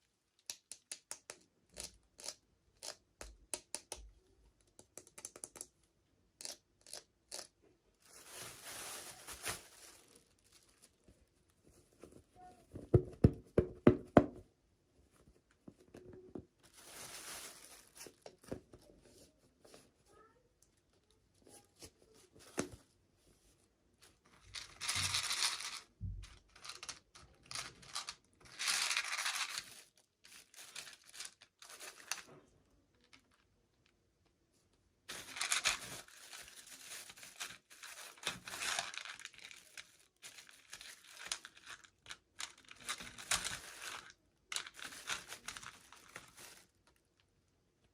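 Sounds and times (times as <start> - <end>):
small clicks and taps: 3.2 - 5.8
packaging tearing and crinkling: 35.1 - 46.8.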